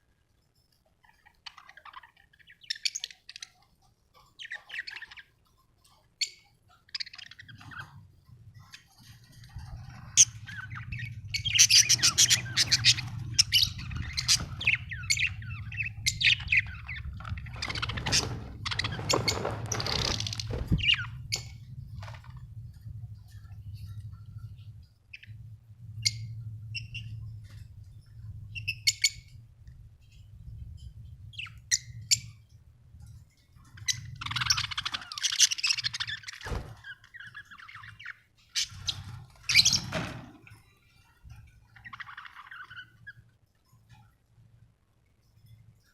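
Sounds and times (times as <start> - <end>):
budgerigar chirping: 10.0 - 19.1.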